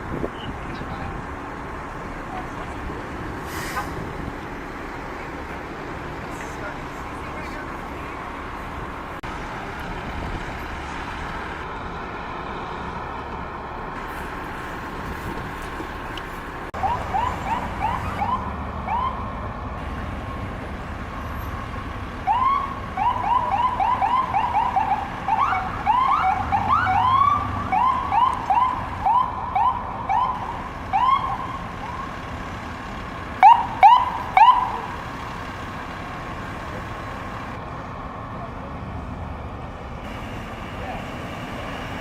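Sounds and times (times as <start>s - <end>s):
low vehicle rumble: 0.0s - 42.0s
emergency siren whooping: 16.8s - 19.4s, 22.2s - 32.2s, 33.4s - 35.0s.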